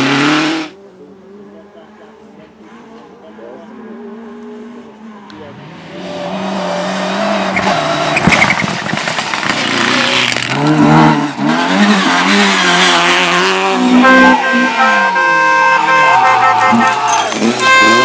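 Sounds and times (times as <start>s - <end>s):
rally car engine revving: 0.0s - 18.0s
tyre squeal: 7.2s - 9.2s.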